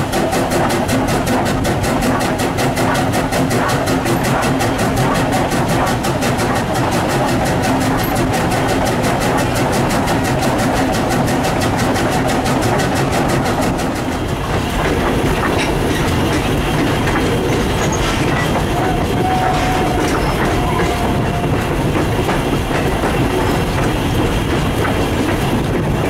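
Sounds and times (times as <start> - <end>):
train rumble and clickety-clack: 0.0 - 26.0
short steady squeal: 17.8 - 21.7.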